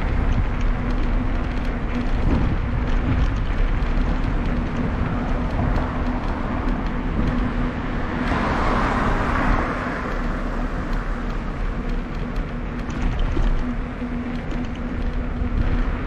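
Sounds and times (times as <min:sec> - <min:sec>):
wind rumble on microphone: 0:00.0 - 0:16.0
car passing: 0:04.0 - 0:16.0.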